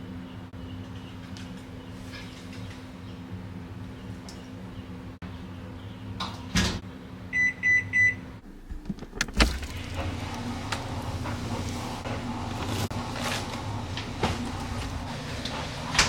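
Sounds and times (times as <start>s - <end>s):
machine hum: 8.2s - 16.0s.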